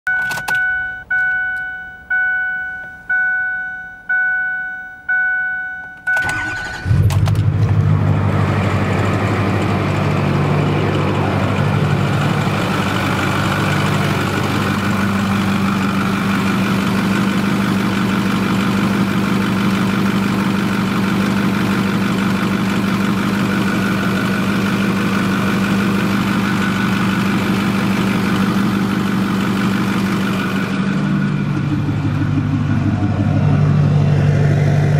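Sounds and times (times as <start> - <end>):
electronic chime beeps: 0.1 - 6.9
diesel engine cranking and idling: 0.1 - 34.9.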